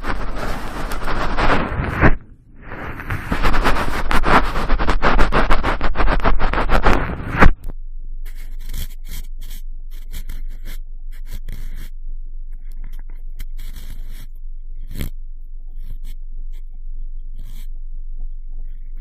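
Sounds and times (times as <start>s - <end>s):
cotton swab scratching microphone: 0.0s - 12.0s, 12.6s - 15.2s, 15.8s - 16.8s, 17.4s - 17.8s.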